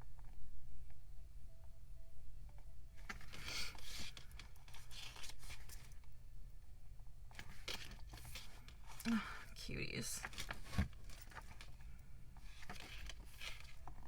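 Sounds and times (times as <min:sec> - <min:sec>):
book pages turning and rustling: 0:02.5 - 0:06.2, 0:07.3 - 0:09.6, 0:10.2 - 0:14.0.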